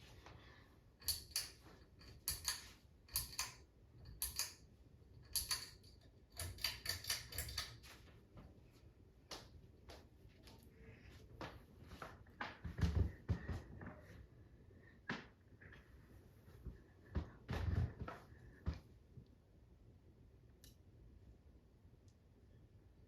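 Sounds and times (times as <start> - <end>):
faint low hum: 0.0 - 23.0
sharp clicks and light knocks: 1.0 - 8.0.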